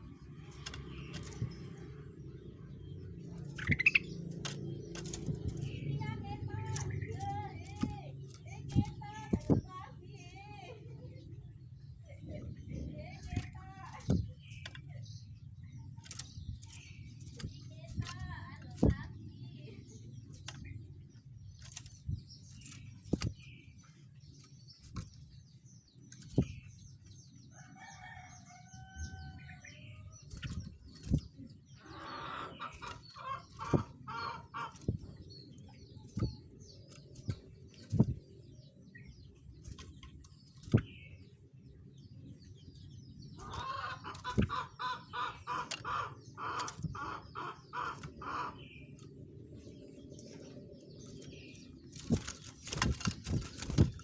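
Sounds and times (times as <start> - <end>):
sharp taps on perches: 0.0 - 10.4, 12.6 - 27.4, 30.1 - 54.0
bird calls: 0.0 - 54.0.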